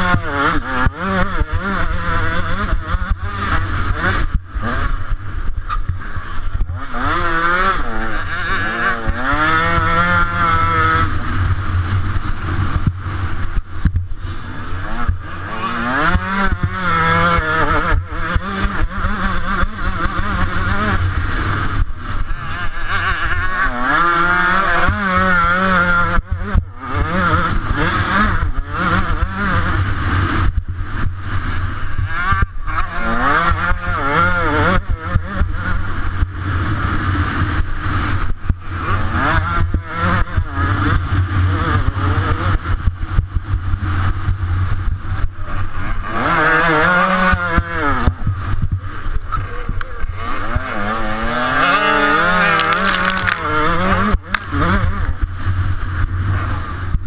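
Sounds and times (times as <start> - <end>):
motocross bike engine revving: 0.0 - 57.0
low rumble: 2.1 - 17.3, 41.2 - 57.0.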